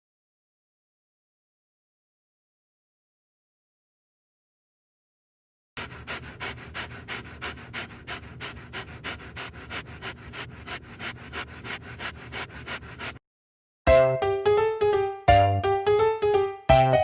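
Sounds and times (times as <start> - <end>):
dog panting: 5.8 - 13.2.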